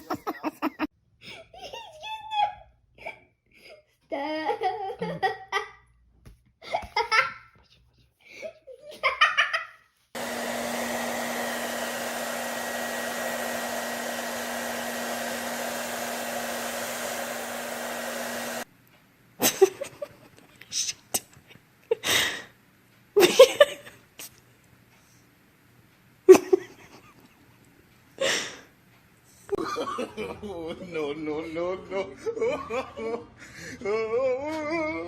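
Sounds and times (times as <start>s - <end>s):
electric motor whirring: 10.2s - 18.6s.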